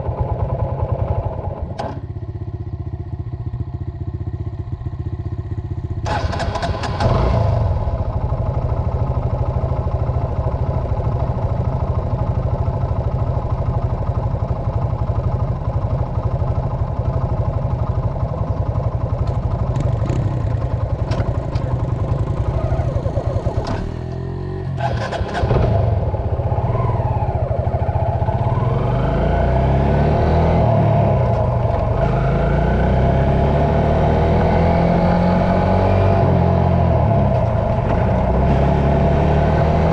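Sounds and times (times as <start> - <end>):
dirt bike engine revving: 28.3 - 39.9.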